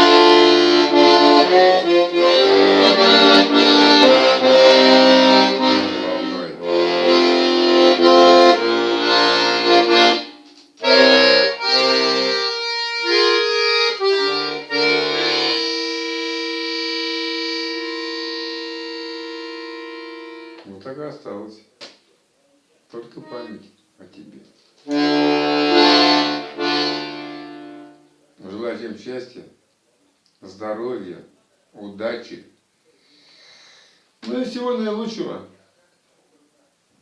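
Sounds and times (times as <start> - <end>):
accordion playing: 0.0 - 20.7, 23.2 - 23.7, 24.8 - 28.3.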